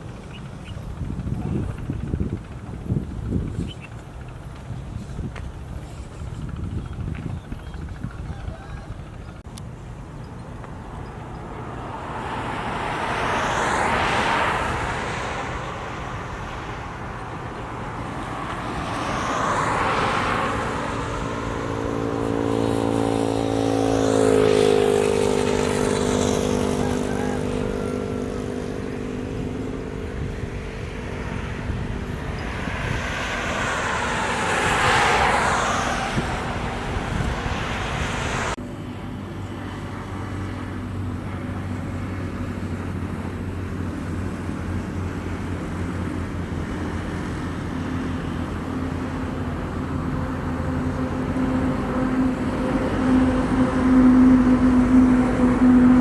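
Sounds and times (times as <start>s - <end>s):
vehicles passing by: 0.0s - 56.0s.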